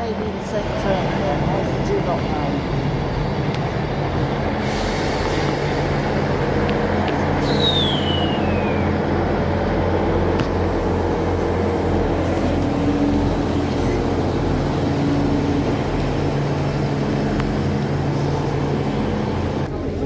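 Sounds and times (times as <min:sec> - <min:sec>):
train diesel engines humming: 0:00.0 - 0:20.0
short falling squeal: 0:07.4 - 0:09.0.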